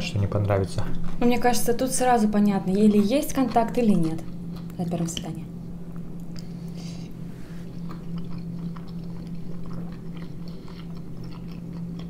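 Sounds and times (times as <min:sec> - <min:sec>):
steady low hum: 0:00.0 - 0:12.0
people chewing with wet smacks: 0:02.4 - 0:05.3, 0:05.9 - 0:12.0.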